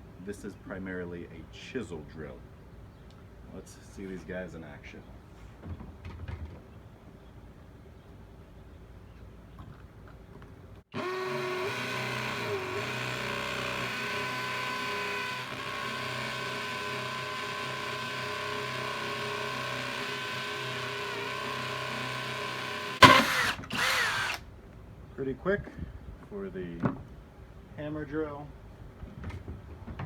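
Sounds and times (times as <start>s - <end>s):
cordless drill motor whining: 10.9s - 24.4s.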